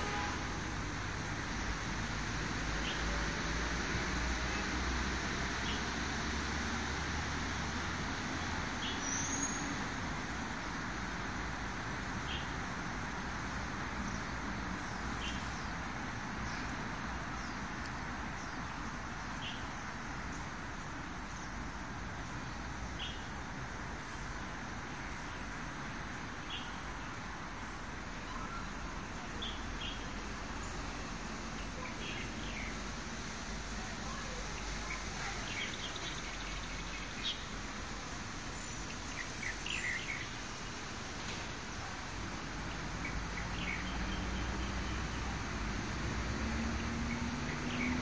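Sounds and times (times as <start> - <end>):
traffic noise: 0.0 - 48.0
bird chirping: 28.3 - 30.9, 34.2 - 37.6, 38.5 - 40.8, 42.6 - 45.3.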